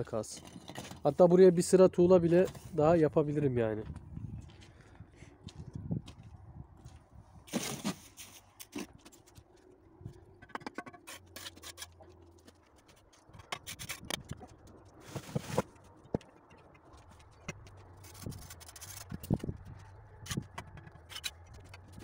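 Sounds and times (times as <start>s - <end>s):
mortar and brick scraping: 0.0s - 2.8s, 10.4s - 12.2s, 13.2s - 22.0s
bricks clicking and knocking: 10.4s - 22.0s.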